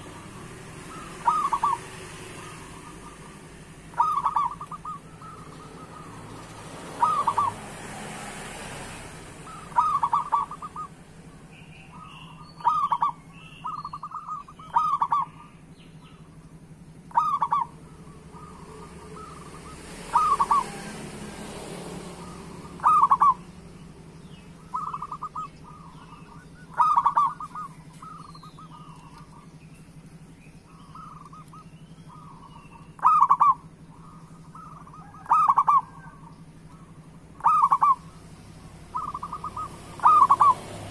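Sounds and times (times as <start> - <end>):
dove cooing: 0.0 - 8.1, 9.2 - 16.4, 17.0 - 29.5, 30.6 - 40.9
steady low hum: 8.9 - 40.9.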